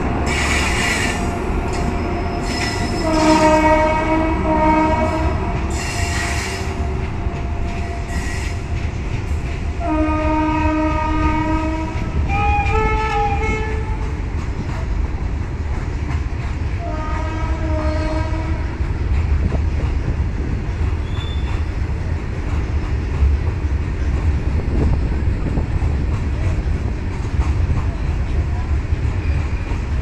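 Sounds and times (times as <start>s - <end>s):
freight train wheels rumbling: 0.0s - 30.0s
wheels clickety-clack over rail joints: 0.0s - 30.0s.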